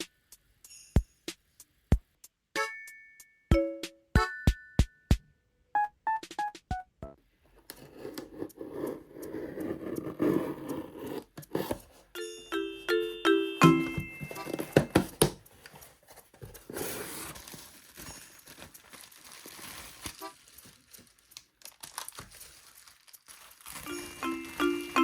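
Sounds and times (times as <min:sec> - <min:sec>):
background music: 0:01.9 - 0:07.2, 0:08.0 - 0:25.0
packaging crinkling: 0:14.4 - 0:25.0
packaging tearing: 0:16.6 - 0:24.1.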